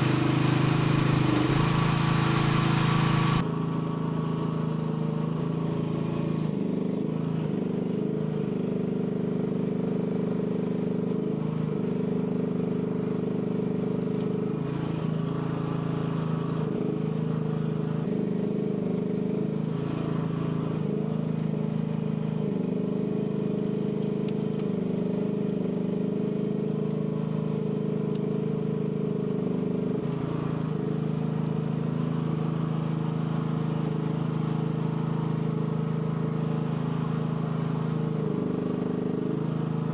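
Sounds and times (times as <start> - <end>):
mini excavator engine running: 0.0 - 3.4.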